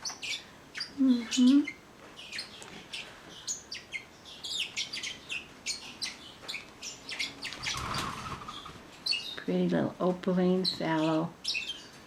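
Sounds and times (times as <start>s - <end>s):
parakeets chirping: 0.0s - 9.5s, 10.4s - 12.0s.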